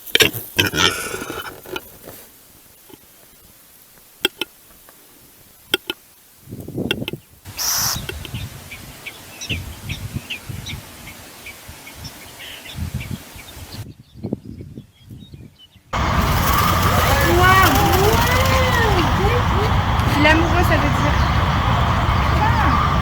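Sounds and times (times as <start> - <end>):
sharp clicks: 4.2 - 4.5, 5.8 - 6.0, 6.9 - 8.4
birds chirping: 6.6 - 23.0.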